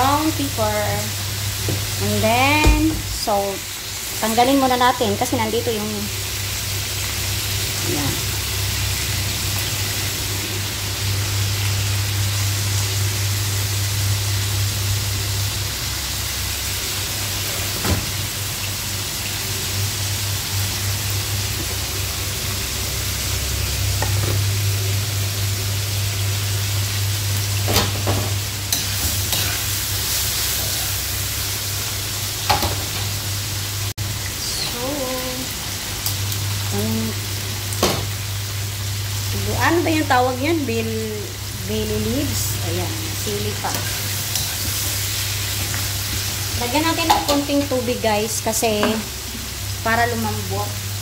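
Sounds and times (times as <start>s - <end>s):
meat and onion sizzling in oil: 0.0s - 51.0s
spoon scraping a pan: 28.7s - 30.8s, 43.6s - 45.8s.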